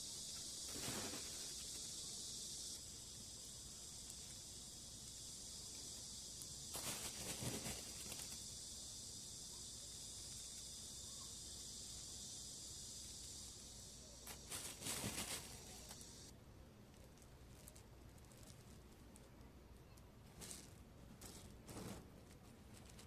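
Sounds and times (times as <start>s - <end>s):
high-pitched insect chorus: 0.0s - 16.3s
handling noise: 14.3s - 16.3s.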